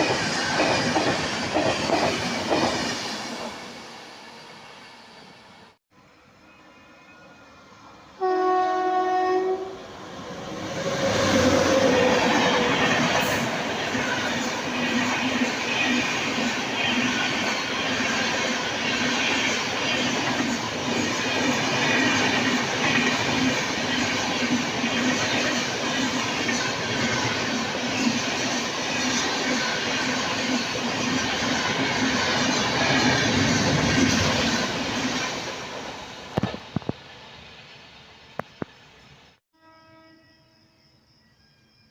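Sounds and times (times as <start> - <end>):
train wheels rattling over rail joints: 0.0 - 3.6
express train rushing past: 0.0 - 39.2
train horn: 8.2 - 9.9, 39.5 - 40.9.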